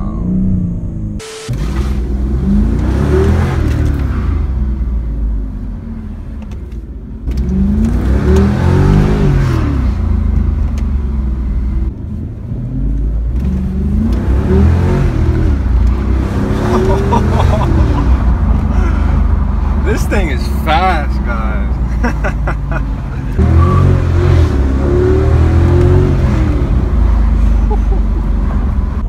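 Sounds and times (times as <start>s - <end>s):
car engine accelerating hard: 0.0s - 6.5s, 7.3s - 29.0s.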